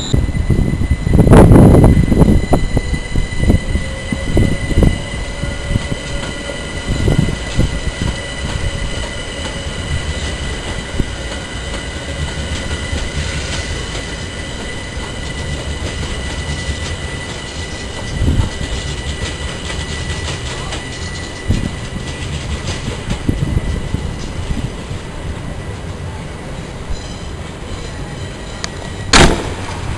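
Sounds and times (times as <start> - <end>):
high whine: 0.0 - 18.4
train rumble: 0.0 - 29.9.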